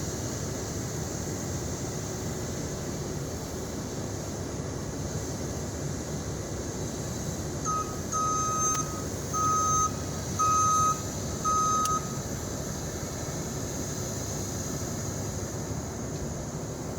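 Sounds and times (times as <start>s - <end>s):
truck engine running: 7.4s - 13.3s
reversing alarm beeps: 7.6s - 12.3s.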